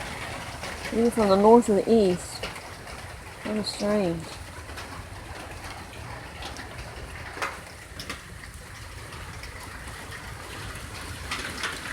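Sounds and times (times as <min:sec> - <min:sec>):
drips and splashes: 0:00.0 - 0:11.9
rain falling: 0:00.0 - 0:11.9.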